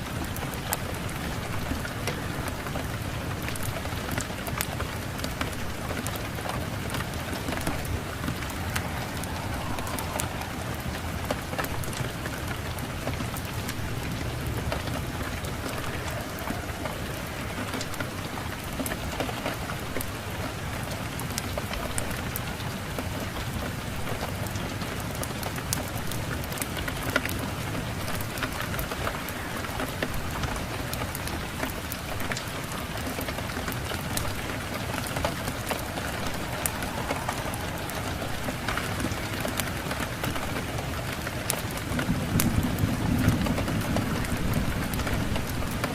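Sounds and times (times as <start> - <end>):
steady rain falling: 0.0 - 45.9
low rumble: 7.4 - 12.7.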